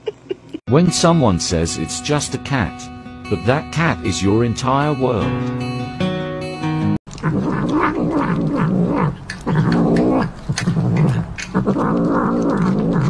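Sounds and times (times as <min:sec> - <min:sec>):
cat growling: 0:07.1 - 0:13.0
chewing clicks: 0:07.1 - 0:13.0.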